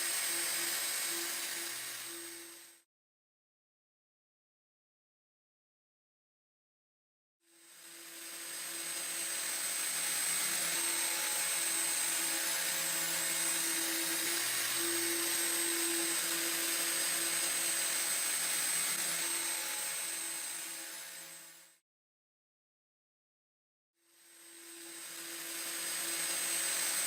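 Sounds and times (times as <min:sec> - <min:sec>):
power tool hissing and humming: 0:00.0 - 0:02.8, 0:07.5 - 0:21.8, 0:24.0 - 0:27.0.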